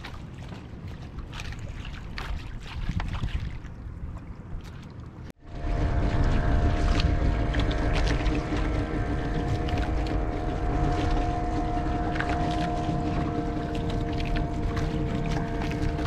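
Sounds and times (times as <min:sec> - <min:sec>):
wind and water rumble: 0:00.0 - 0:16.0
boat engine running: 0:05.3 - 0:16.0.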